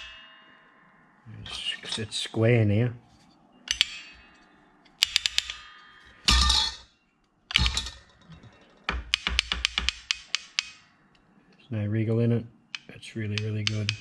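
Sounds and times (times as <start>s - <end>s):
metal parts clicking: 3.7s - 4.2s, 4.9s - 5.6s, 7.5s - 10.8s.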